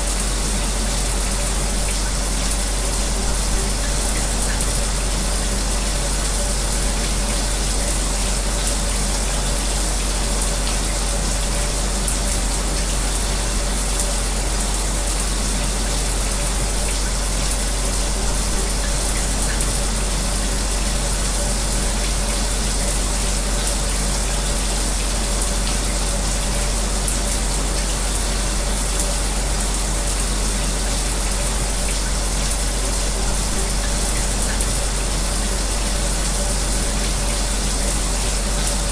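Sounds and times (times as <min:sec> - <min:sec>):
shower running: 0:00.0 - 0:38.9.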